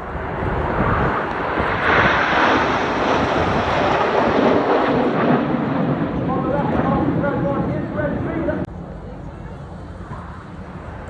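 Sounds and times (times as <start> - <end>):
jets flying past: 0.0 - 8.7.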